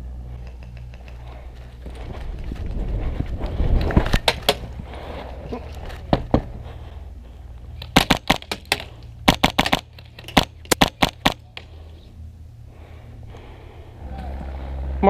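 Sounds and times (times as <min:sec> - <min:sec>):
airsoft gun shots: 0:07.9 - 0:11.4.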